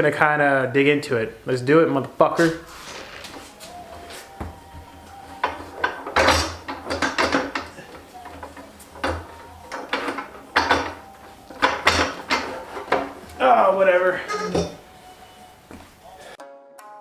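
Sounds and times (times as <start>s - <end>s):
hand tools and metal parts clacking: 2.4s - 13.4s.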